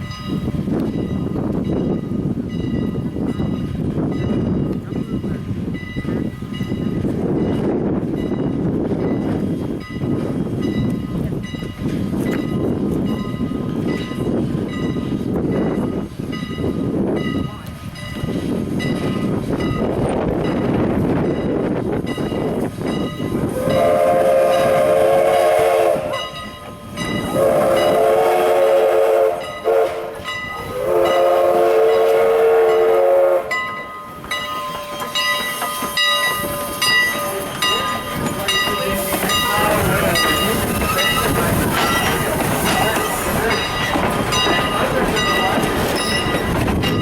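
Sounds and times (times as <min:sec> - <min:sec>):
train running: 0:00.0 - 0:47.0
steam locomotive whistle blasts: 0:23.4 - 0:37.5
ringing metallic tones: 0:33.5 - 0:47.0.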